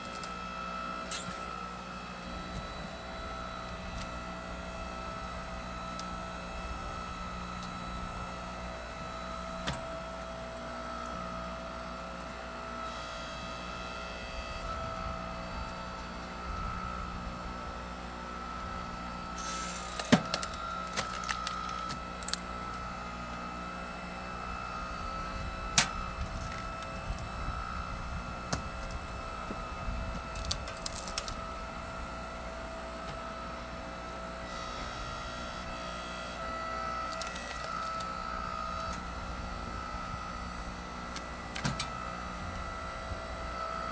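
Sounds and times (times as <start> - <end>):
log splitter engine running: 0.0 - 43.9
wood cracking and splintering: 19.8 - 22.4, 30.2 - 31.5.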